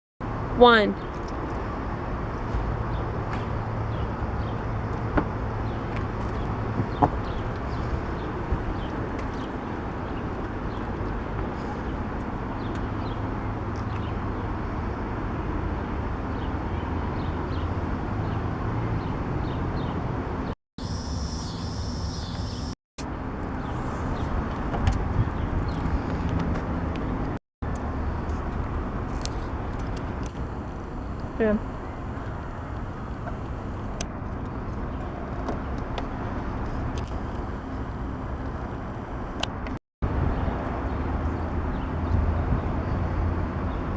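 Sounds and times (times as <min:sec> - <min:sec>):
outdoor background rumble: 0:00.2 - 0:43.9
faint bird chirps: 0:20.8 - 0:22.8.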